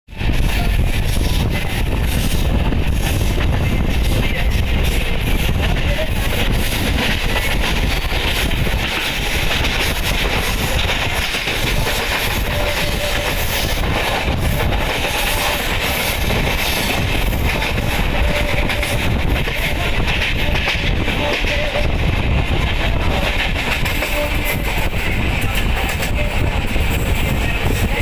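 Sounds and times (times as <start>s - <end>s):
train wheels rumbling on rails: 0.1s - 28.0s.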